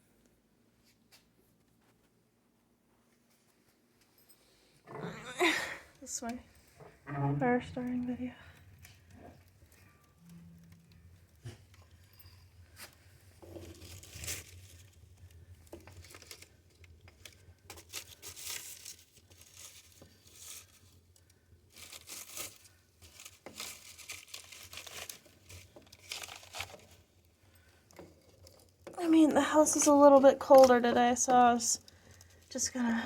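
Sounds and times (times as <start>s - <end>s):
low steady hum: 4.9s - 14.8s
fire crackling and popping: 7.9s - 32.9s.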